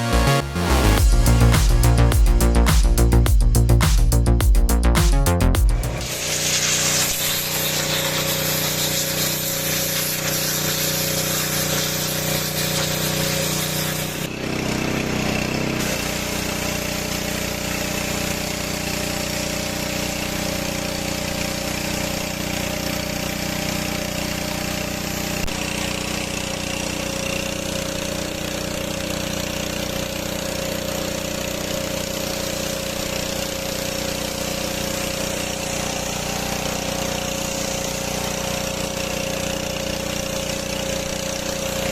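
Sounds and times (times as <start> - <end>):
pressure washer engine running: 0.0 - 4.9, 5.5 - 41.9
loud hiss: 5.7 - 14.2, 33.6 - 40.1.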